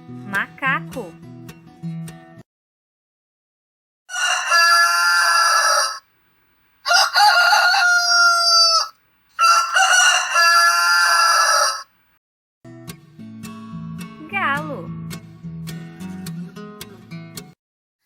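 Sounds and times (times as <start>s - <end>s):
rooster crowing: 4.1s - 6.1s, 6.8s - 11.9s.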